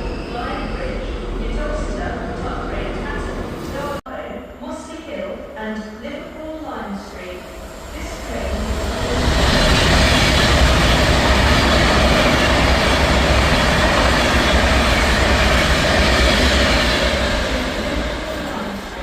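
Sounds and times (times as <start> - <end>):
train passing at speed: 7.1 - 19.0.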